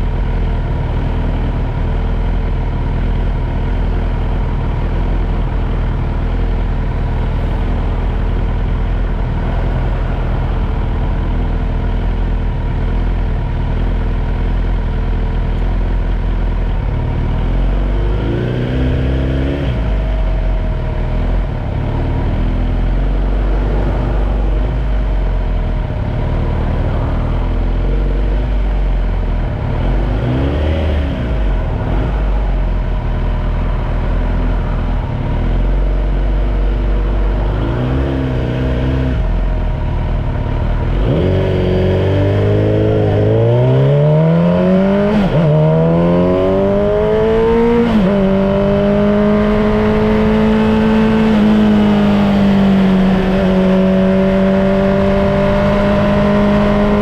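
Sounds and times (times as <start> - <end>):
motorcycle engine idling: 0.0 - 18.0, 19.8 - 30.1, 39.2 - 41.0
motorcycle accelerating away: 17.1 - 32.8, 37.2 - 57.0.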